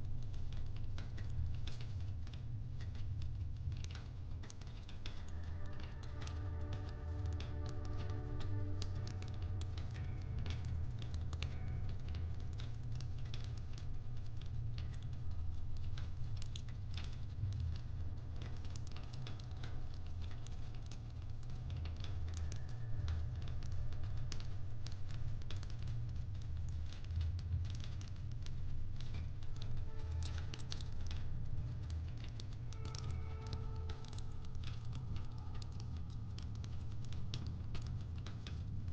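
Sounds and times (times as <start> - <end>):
low fire rumble: 0.0 - 38.9
fire crackling and popping: 0.1 - 38.9.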